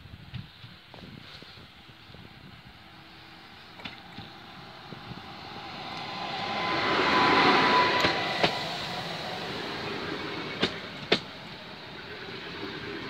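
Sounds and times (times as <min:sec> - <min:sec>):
train wheels rushing on rail: 0:00.3 - 0:13.0
thin whine: 0:02.0 - 0:13.0
wheels clacking over rail joints: 0:05.7 - 0:13.0.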